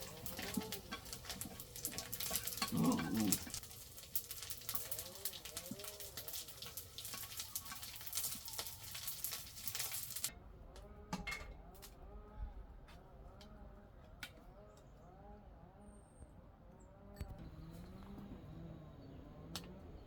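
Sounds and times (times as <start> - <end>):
crackling hiss with pops: 0.0 - 10.3.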